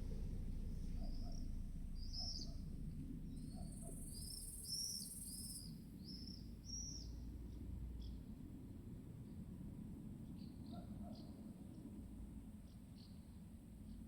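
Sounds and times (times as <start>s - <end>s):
songbird chirping: 0.0s - 8.2s
low wind rumble: 0.0s - 10.3s.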